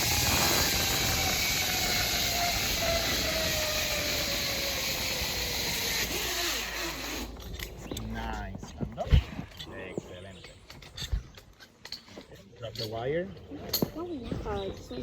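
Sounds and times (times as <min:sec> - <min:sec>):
pulleys running along steel cable: 0:00.0 - 0:07.7.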